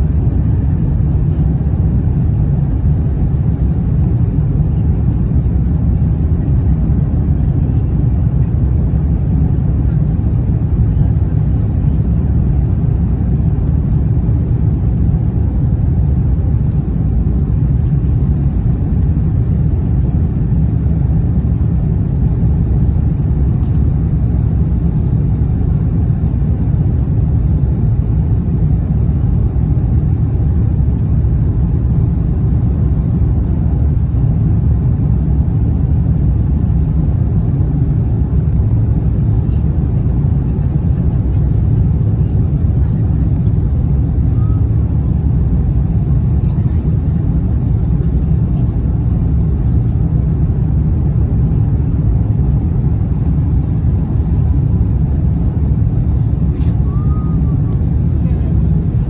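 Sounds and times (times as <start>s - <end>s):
jet engine drone: 9.3s - 59.0s
air rushing along fuselage: 29.6s - 59.0s.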